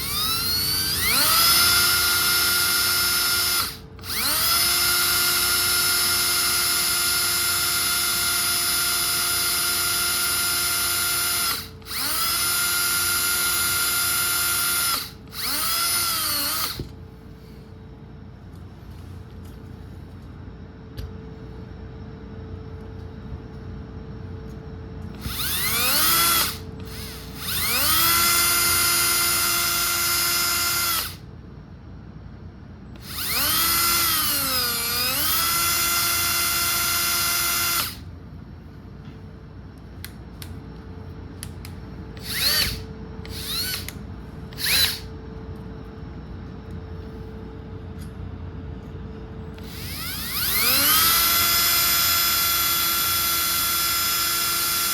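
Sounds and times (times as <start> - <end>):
electric drill motor whine: 0.0 - 17.0, 25.1 - 31.3, 33.0 - 38.1, 42.1 - 45.3, 49.5 - 54.9.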